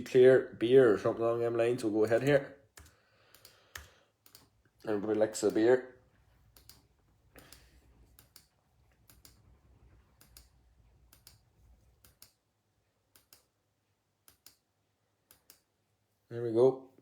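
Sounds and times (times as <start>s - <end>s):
faint computer mouse clicks: 2.8s - 4.5s, 6.5s - 6.8s, 7.4s - 9.5s, 10.2s - 12.4s, 13.2s - 13.5s, 14.3s - 14.6s, 15.3s - 15.7s.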